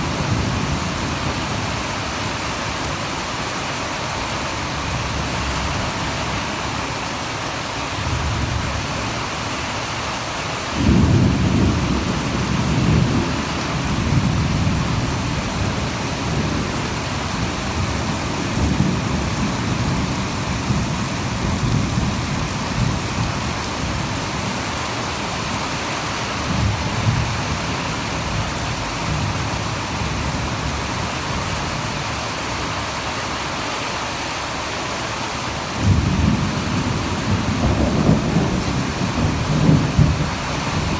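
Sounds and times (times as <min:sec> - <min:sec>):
heavy rain hissing: 0:00.0 - 0:40.9
thunder rumbling: 0:10.8 - 0:24.9, 0:35.8 - 0:40.9.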